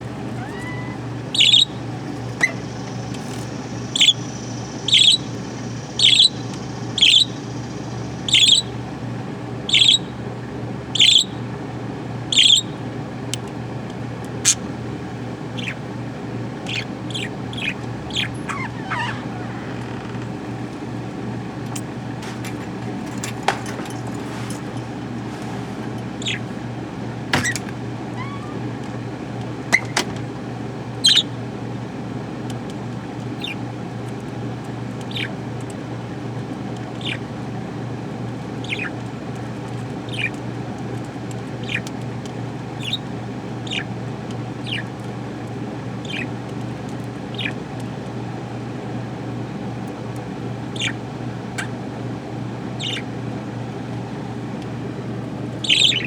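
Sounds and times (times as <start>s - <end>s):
budgerigar chirping: 0.2s - 8.8s, 9.7s - 10.1s, 11.0s - 11.4s, 12.3s - 12.8s, 15.5s - 15.9s, 16.6s - 20.2s, 26.2s - 26.5s, 28.2s - 28.7s, 31.0s - 31.4s, 33.4s - 33.6s, 35.1s - 35.4s, 37.0s - 37.2s, 38.6s - 39.0s, 40.1s - 40.4s, 41.6s - 41.9s, 42.8s - 43.9s, 44.6s - 44.9s, 46.0s - 46.3s, 47.3s - 47.6s, 50.7s - 51.0s, 52.8s - 53.1s, 55.6s - 56.0s.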